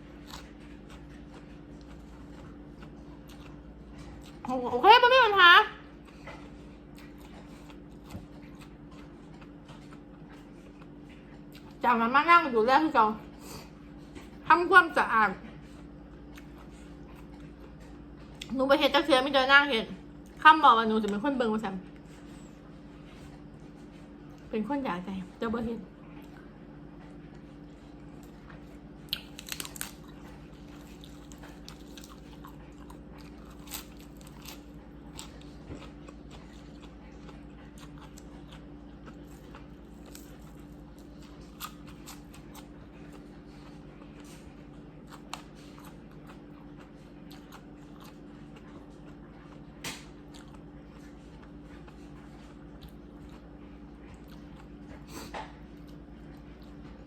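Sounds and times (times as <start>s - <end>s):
person chewing and crunching: 0.0s - 4.8s, 5.8s - 11.8s, 15.5s - 18.6s, 26.1s - 57.0s
steady low hum: 0.0s - 57.0s.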